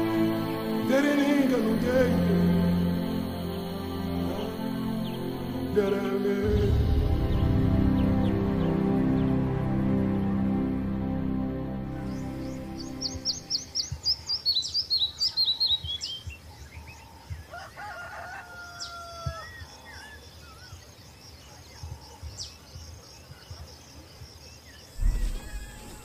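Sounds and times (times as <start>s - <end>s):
rapid high bird chirps: 12.0s - 17.4s
high bird calls: 12.0s - 24.1s, 24.8s - 26.0s
rooster crowing: 17.4s - 19.6s, 25.0s - 26.0s.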